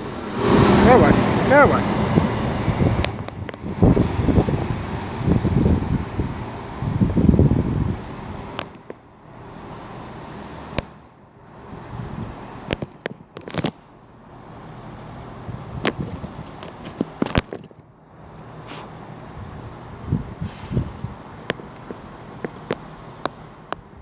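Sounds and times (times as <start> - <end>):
wind buffeting microphone: 0.0 - 8.8, 11.6 - 12.9, 15.2 - 17.4, 18.2 - 24.0.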